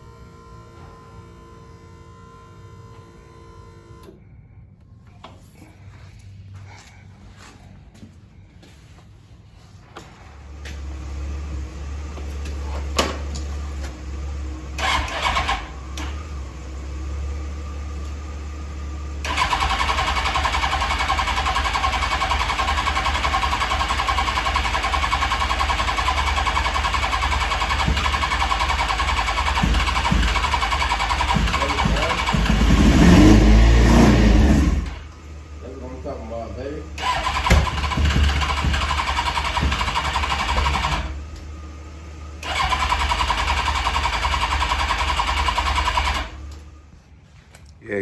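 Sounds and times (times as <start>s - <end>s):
motorcycle engine sputtering and running: 10.4s - 46.8s.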